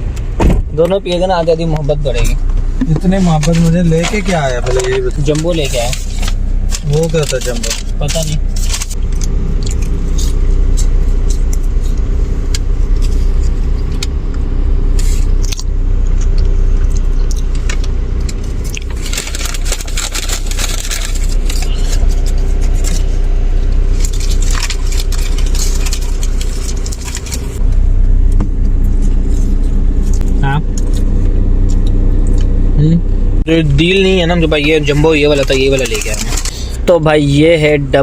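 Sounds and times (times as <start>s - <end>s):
car cabin hum: 0.0s - 38.0s
paper wrappers crinkling: 3.2s - 11.4s, 18.4s - 27.6s, 34.5s - 37.0s.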